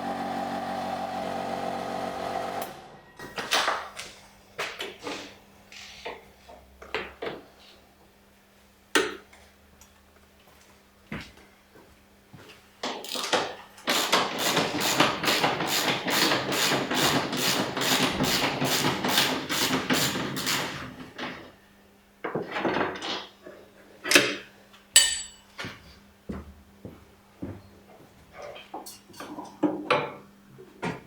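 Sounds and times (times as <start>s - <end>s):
short ringing clink: 25.0s - 25.4s.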